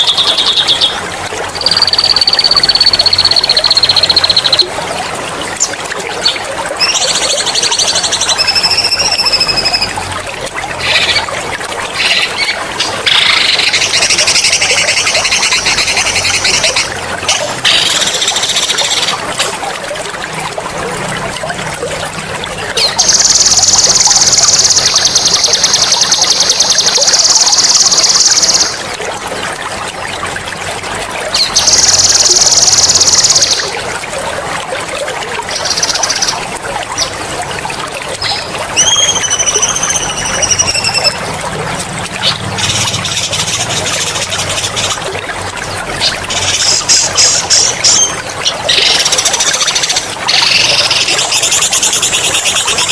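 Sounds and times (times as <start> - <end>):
trickling water: 0.0 - 52.9
songbird trilling: 1.7 - 4.7.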